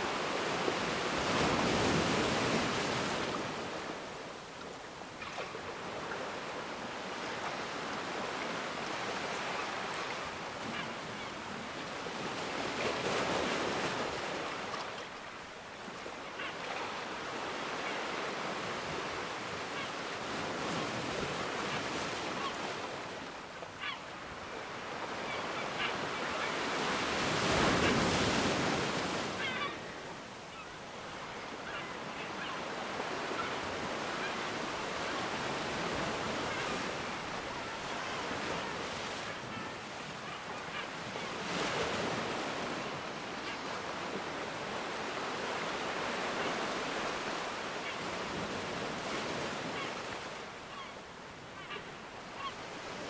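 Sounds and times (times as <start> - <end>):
ocean waves breaking: 0.0 - 4.2.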